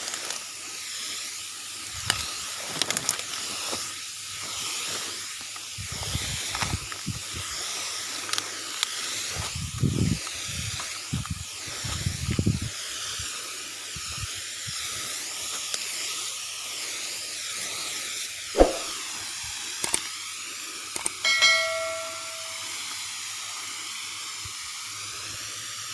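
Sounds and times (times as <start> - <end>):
sharp knock: 18.6 - 18.9.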